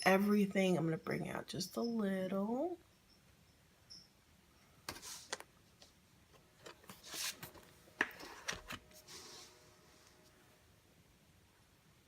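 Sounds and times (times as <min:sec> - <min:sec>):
paper rustling: 0:06.6 - 0:10.2.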